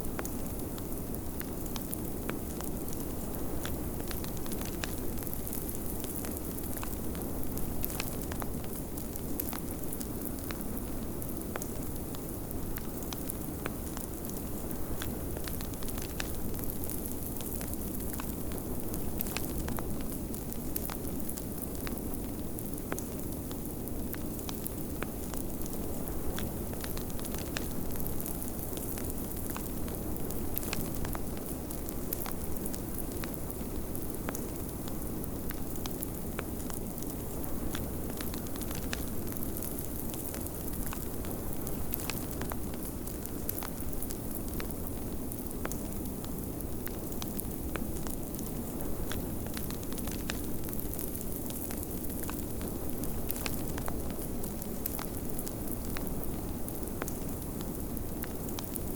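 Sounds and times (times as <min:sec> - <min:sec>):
wood fire crackling and popping: 0:00.0 - 0:58.9.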